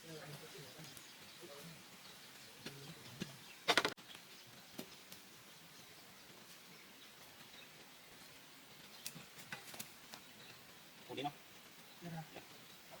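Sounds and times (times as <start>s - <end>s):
faint outdoor background: 0.0s - 13.0s
rattle of sharp knocks: 3.7s - 4.0s.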